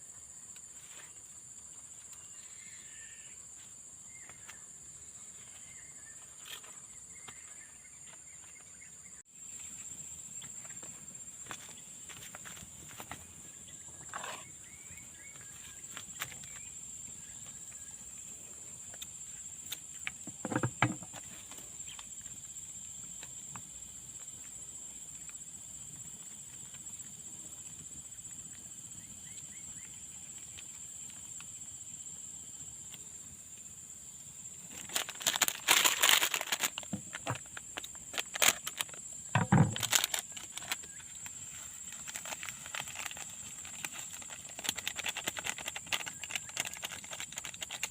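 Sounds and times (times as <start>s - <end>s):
faint bird chirps: 2.0s - 9.7s
dense rustling and crackling: 34.6s - 47.9s.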